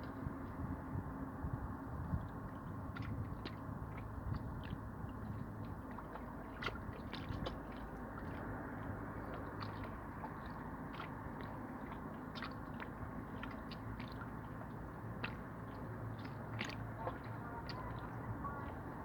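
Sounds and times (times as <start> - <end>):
sea waves washing: 15.2 - 19.0.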